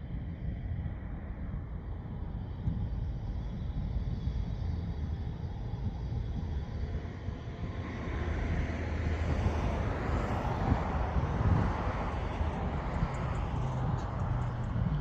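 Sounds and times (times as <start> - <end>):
wind rumbling on microphone: 0.0 - 15.0
vehicle approaching: 6.8 - 15.0.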